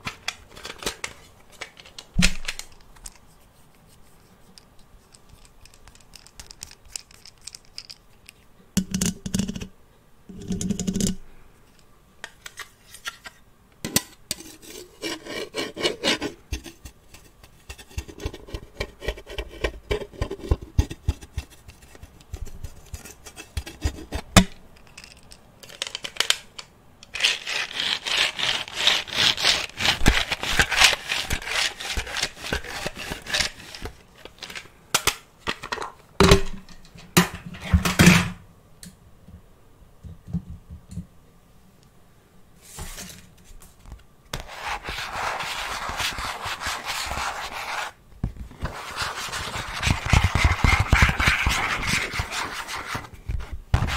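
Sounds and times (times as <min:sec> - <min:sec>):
rubbing and scratching on object: 0:14.3 - 0:24.5, 0:27.2 - 0:34.0, 0:44.4 - 0:53.9.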